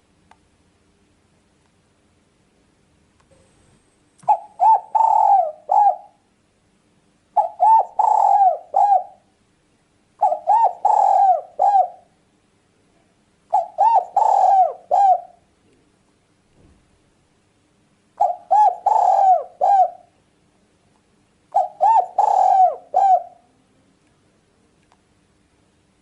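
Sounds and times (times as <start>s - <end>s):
dove cooing: 4.3s - 6.2s, 7.4s - 9.3s, 10.2s - 12.1s, 13.5s - 15.4s, 18.2s - 20.1s, 21.5s - 23.6s.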